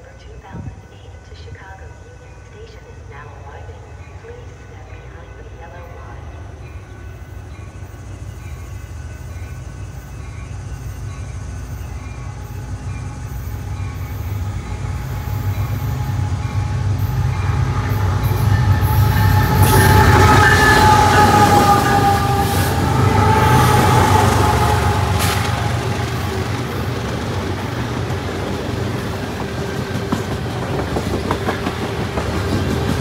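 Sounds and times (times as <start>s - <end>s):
train rumble: 0.0s - 33.0s
high wavering brake squeal: 7.1s - 26.4s.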